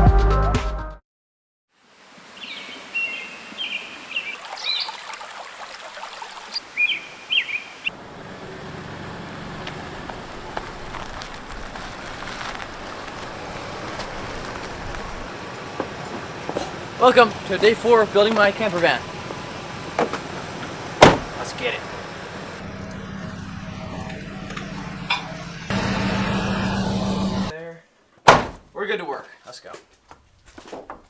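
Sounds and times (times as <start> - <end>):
bird chirping: 2.4 - 5.0, 6.5 - 8.0
outdoor background rumble: 7.8 - 27.5, 28.3 - 28.8.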